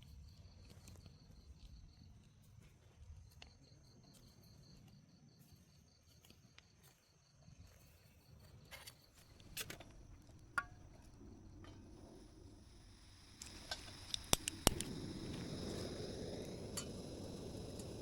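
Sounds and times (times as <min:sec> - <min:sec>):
cricket chirping: 0:00.0 - 0:18.0
faint clicks and knocks: 0:09.3 - 0:12.7.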